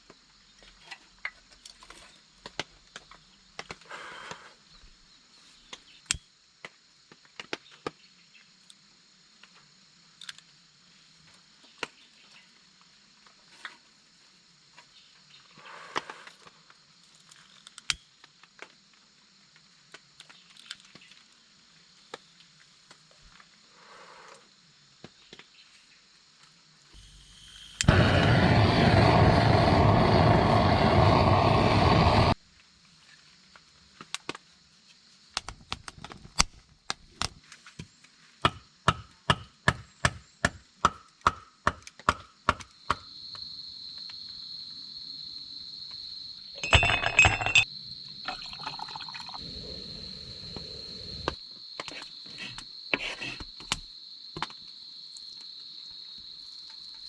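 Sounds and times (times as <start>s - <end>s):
high insect trill: 26.1s - 33.8s, 42.8s - 57.0s
wood being chopped: 38.4s - 43.0s.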